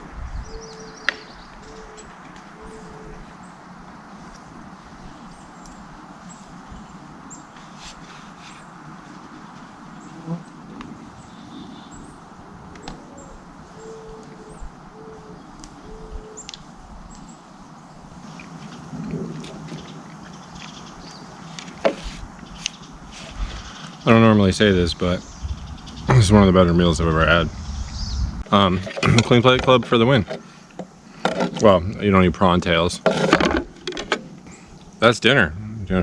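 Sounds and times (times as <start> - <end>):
steady background hiss: 0.0 - 36.0
small birds chirping: 0.3 - 4.4, 5.1 - 18.6, 19.6 - 28.8, 34.4 - 36.0.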